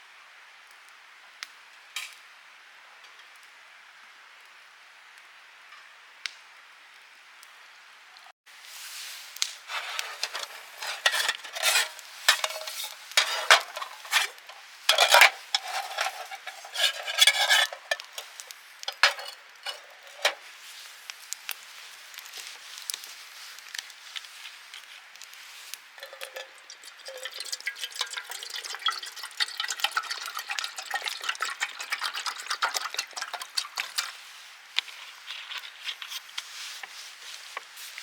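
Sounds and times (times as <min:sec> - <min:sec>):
metal cookware clattering and scraping: 0:09.7 - 0:20.4, 0:26.0 - 0:34.2.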